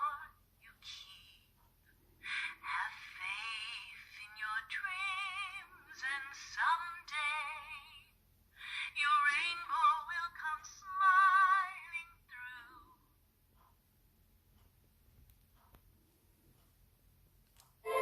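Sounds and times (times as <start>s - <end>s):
toy speaker playing woman singing: 0.0s - 1.4s, 2.3s - 8.2s, 8.8s - 13.0s.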